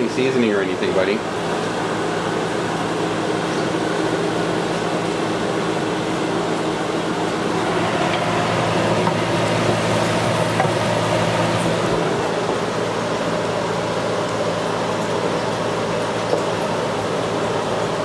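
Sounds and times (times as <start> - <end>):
fan humming with rushing air: 0.0 - 18.0.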